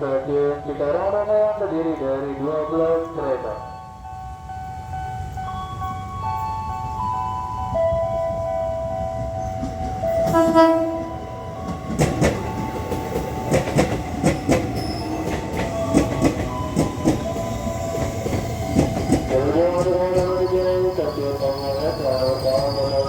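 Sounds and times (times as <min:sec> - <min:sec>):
train horn blast: 0:10.3 - 0:11.1
train wheels clacking: 0:11.6 - 0:23.0.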